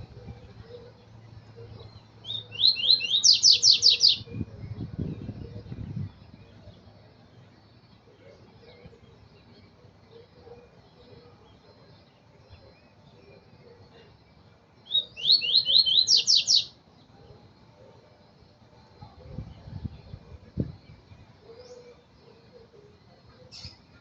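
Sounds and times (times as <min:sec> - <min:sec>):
bird singing: 0:00.0 - 0:24.0.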